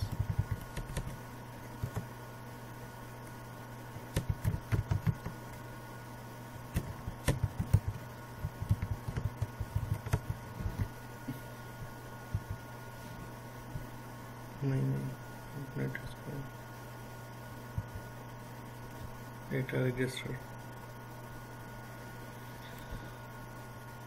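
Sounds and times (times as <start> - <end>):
computer keyboard typing: 0.0 - 2.1, 4.0 - 5.6, 6.7 - 10.9, 12.3 - 12.6
low steady hum: 0.0 - 24.0.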